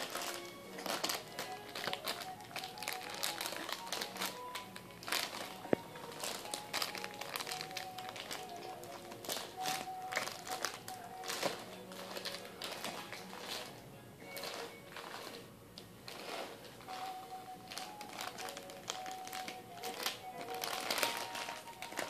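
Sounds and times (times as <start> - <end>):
music with held tones: 0.0 - 22.0
plastic package crinkling: 0.0 - 22.0.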